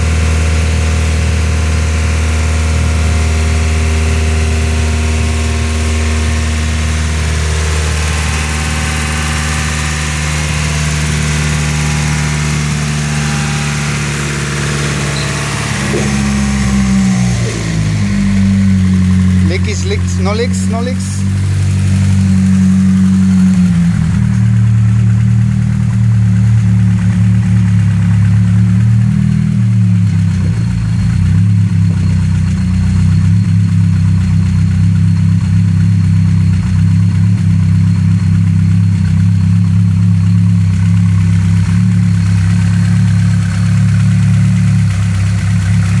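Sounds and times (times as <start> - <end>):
car engine idling: 0.0 - 46.0.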